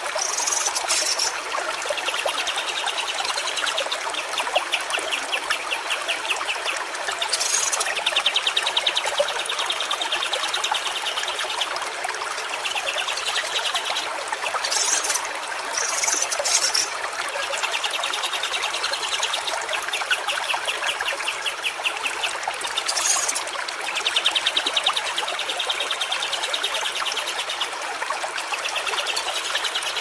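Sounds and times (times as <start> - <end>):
stream water trickling: 0.0 - 30.0.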